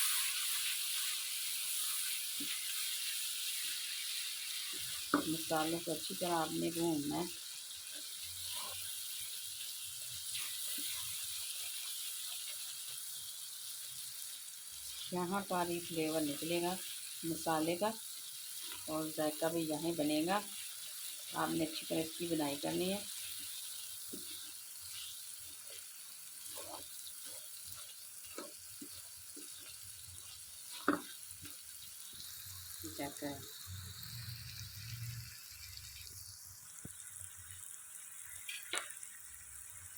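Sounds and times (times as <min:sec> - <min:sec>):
masala sizzling in oil: 0:00.0 - 0:39.9
light stirring knocks: 0:26.5 - 0:29.8, 0:30.6 - 0:31.6
small pops and clicks: 0:38.4 - 0:39.1.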